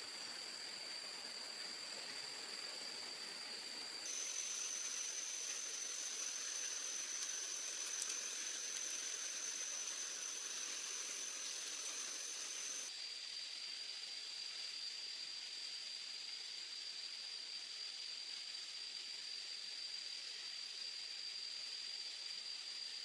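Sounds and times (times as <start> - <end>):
soft hiss: 0.0 - 12.9
high-pitched insect drone: 4.0 - 23.0.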